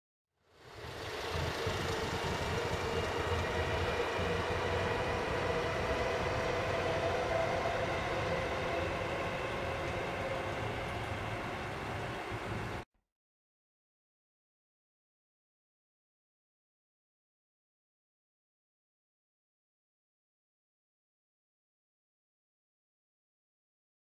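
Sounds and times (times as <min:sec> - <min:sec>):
faint whining tones: 0:00.4 - 0:12.8
train wheels rumbling on rails: 0:00.5 - 0:12.8.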